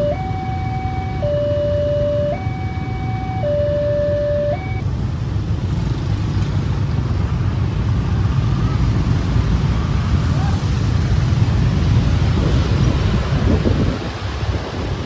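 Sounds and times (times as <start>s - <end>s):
two-tone siren: 0.0s - 4.8s
low rumble of vehicle noise: 0.0s - 15.0s.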